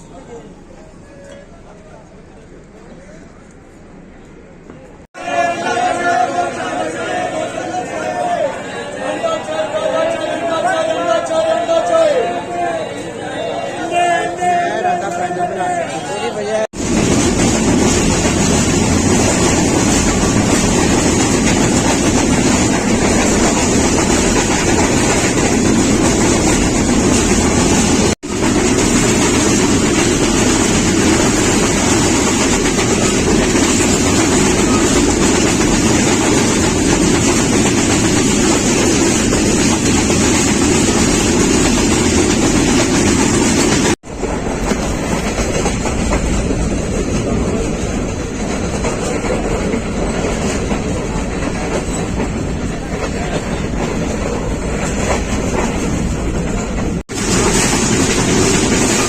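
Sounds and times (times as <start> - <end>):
train wheels rumbling on rails: 16.7 - 59.0.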